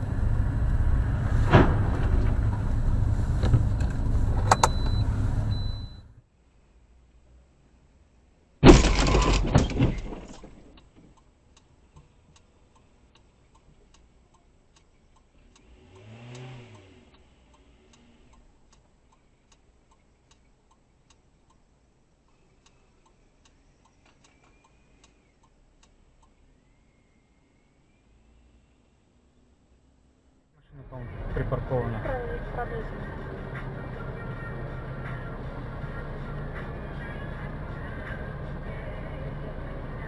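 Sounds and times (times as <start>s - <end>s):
car collision crash: 1.2s - 3.1s, 8.6s - 10.7s
regular ticking: 10.7s - 28.1s
vehicle passing: 15.4s - 18.3s, 30.6s - 40.0s.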